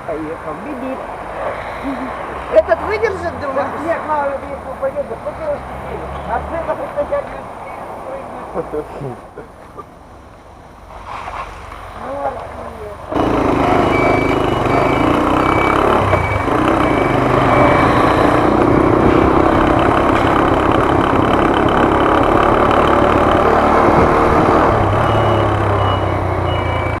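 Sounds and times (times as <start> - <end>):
scooter engine running: 13.1 - 26.0
high electronic beep: 13.2 - 19.6, 24.5 - 27.0.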